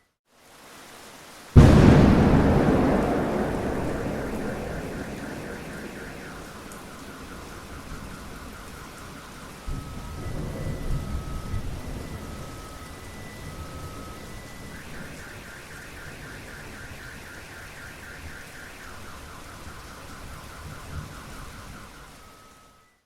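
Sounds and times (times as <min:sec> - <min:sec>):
heavy rain: 0:00.3 - 0:22.6
thunder rumble: 0:01.6 - 0:14.7
car alarm: 0:01.6 - 0:23.0.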